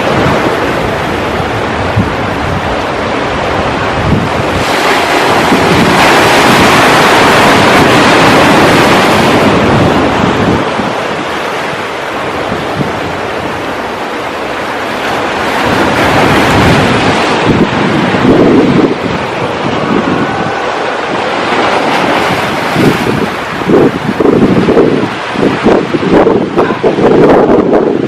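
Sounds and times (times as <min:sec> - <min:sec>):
waves crashing on shore: 0:00.0 - 0:28.0
wind buffeting microphone: 0:00.0 - 0:28.0.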